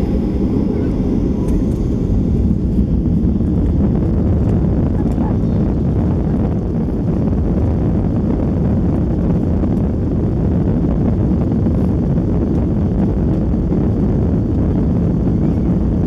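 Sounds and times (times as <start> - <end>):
jet engines rumbling in cabin: 0.0 - 16.0.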